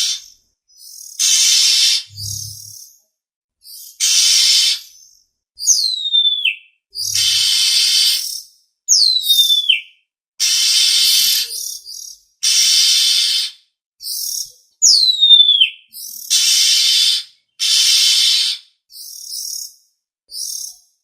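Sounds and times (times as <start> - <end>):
bird harsh rasping calls: 1.2 - 2.8, 7.0 - 8.4, 16.3 - 18.6
bird whistles sliding down: 1.3 - 2.7, 7.0 - 8.1.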